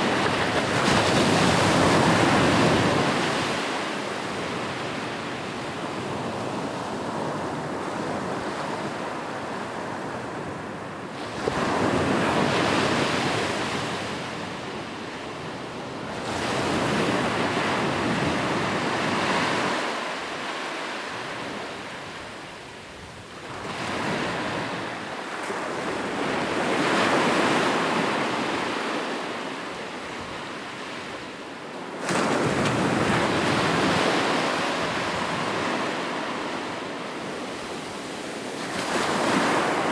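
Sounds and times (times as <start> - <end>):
sea waves breaking on shore: 32.0 - 39.9.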